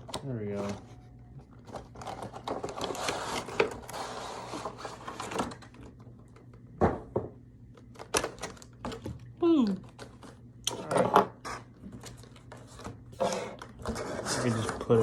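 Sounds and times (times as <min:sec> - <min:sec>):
cardboard packaging rustling: 0:00.0 - 0:06.2.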